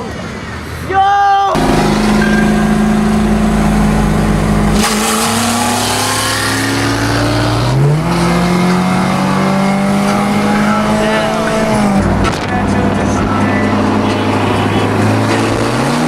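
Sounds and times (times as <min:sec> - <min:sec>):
rushing noise: 0:01.6 - 0:07.2
car engine revving: 0:01.6 - 0:16.0.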